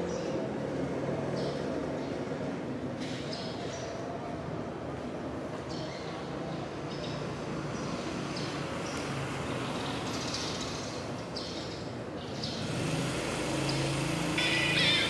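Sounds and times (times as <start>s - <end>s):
birds chirping: 5.7s - 15.0s.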